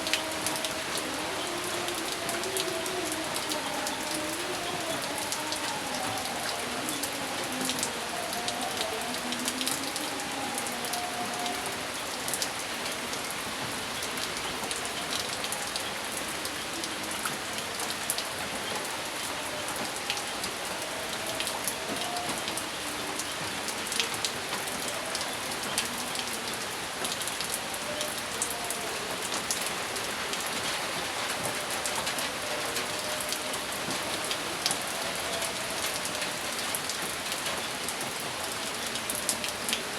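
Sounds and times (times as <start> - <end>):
rain on a hard surface: 0.0 - 39.9.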